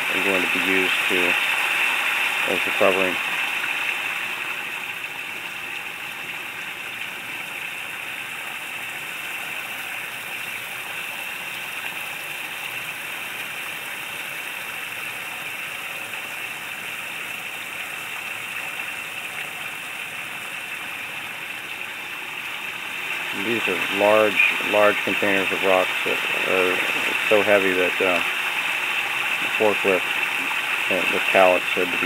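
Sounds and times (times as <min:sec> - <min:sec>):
water splashing down waterfall steps: 0:00.0 - 0:32.0.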